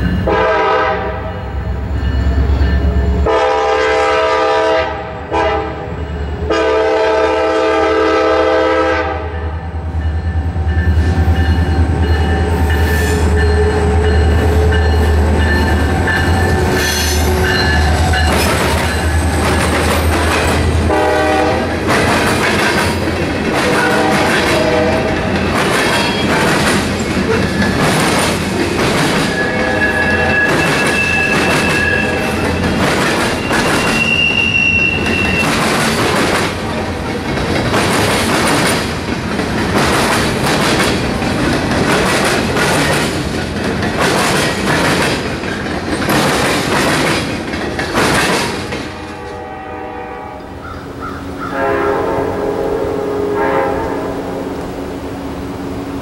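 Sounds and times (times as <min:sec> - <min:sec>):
train horn: 0:00.2 - 0:01.7, 0:03.2 - 0:09.6, 0:20.8 - 0:21.9, 0:23.5 - 0:25.4, 0:29.3 - 0:32.6, 0:48.8 - 0:50.7, 0:51.4 - 0:54.8
train wheels clattering over rail joints: 0:11.4 - 0:34.3, 0:35.0 - 0:49.2
thin high wheel squeal: 0:29.3 - 0:32.6, 0:33.3 - 0:35.6.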